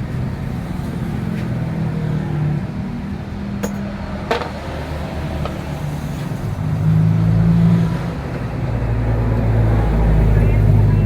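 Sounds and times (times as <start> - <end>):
vehicle engine running: 9.0 - 11.0.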